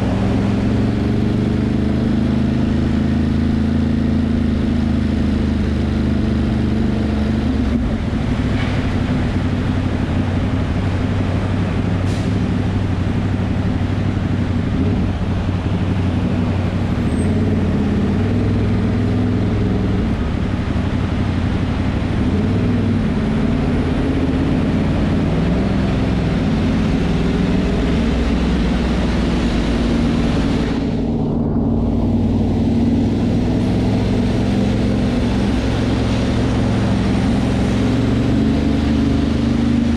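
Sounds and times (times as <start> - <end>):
wind and road noise: 0.0 - 39.9
motorcycle engine running: 12.6 - 39.9.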